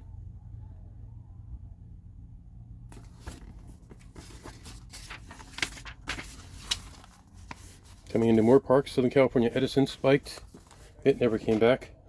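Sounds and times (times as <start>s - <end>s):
low electrical hum: 0.0s - 12.0s
pages rustling and turning: 2.9s - 11.8s.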